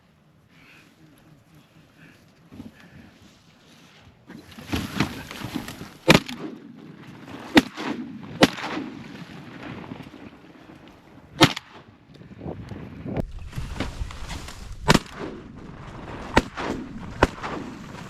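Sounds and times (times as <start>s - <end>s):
shotgun shots: 6.1s - 6.7s, 7.5s - 9.0s, 11.4s - 11.8s, 14.8s - 18.0s.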